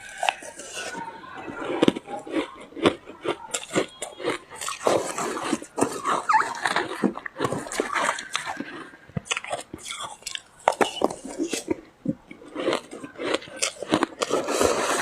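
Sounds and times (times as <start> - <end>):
mouth chewing ice crunches: 0.0 - 15.0.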